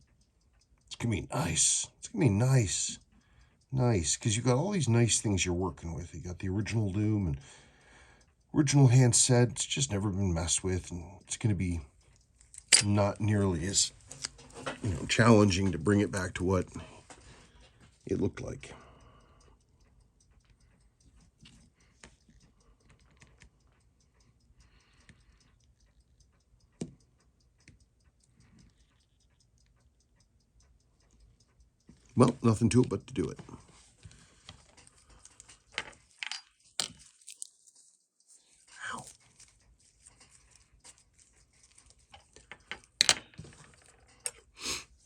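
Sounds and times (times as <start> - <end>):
clockwork ticking: 0.0 - 45.0
small metal tools clicking: 32.0 - 44.8.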